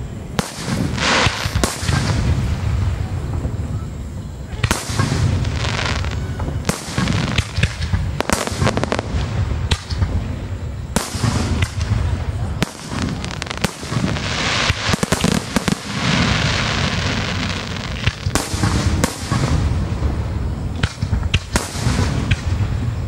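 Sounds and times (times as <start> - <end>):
firework crackles: 0.0 - 23.0
hissing firework shower: 0.0 - 23.0
firework shells bursting: 4.6 - 10.2, 10.8 - 23.0.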